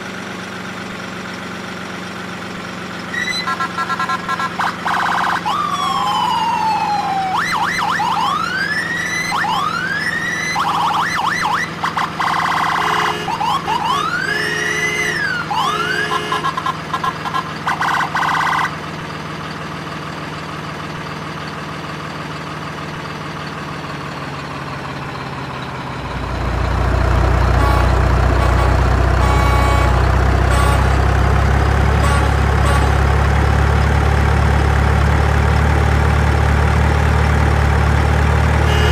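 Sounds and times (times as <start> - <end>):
vehicle engine running: 0.0 - 38.9
electronic siren wailing: 3.1 - 18.8, 27.5 - 31.0, 38.7 - 38.9.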